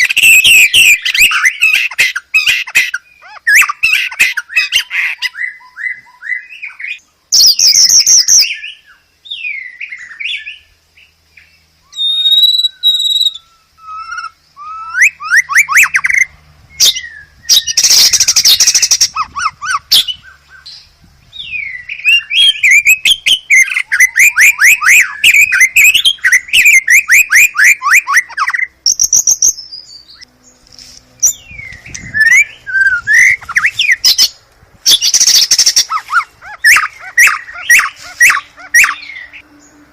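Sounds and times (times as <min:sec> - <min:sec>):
bird whistling song: 0:00.0 - 0:30.3, 0:31.2 - 0:39.8
bird harsh rasping bursts: 0:30.2 - 0:39.4
bird fast repeated notes: 0:31.2 - 0:39.4.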